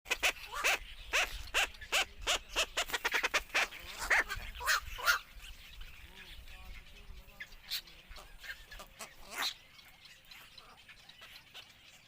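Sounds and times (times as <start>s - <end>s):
herons calling harshly: 0.1s - 12.0s.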